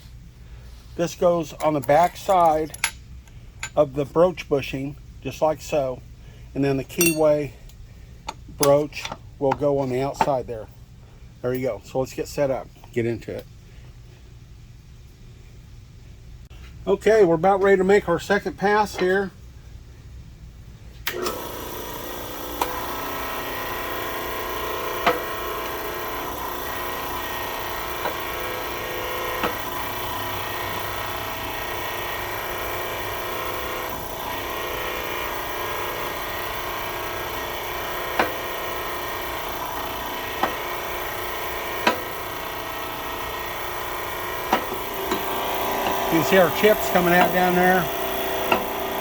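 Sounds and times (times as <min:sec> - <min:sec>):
machine running steadily: 0:21.0 - 0:49.0.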